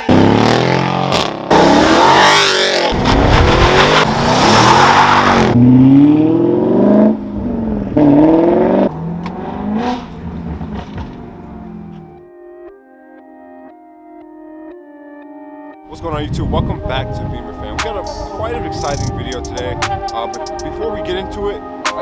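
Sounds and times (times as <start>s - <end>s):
car engine accelerating: 0.0s - 12.2s
loud rushing noise: 2.9s - 5.6s.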